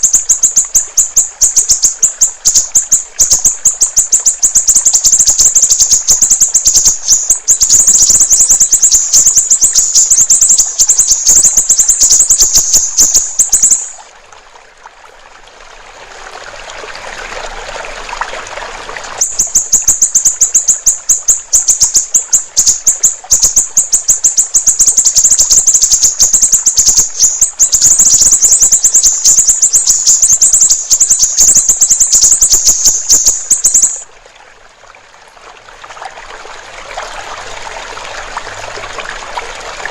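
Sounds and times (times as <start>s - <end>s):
songbird rapid chattering trill: 0.0s - 14.0s, 19.2s - 34.0s
trickling water: 0.0s - 39.9s.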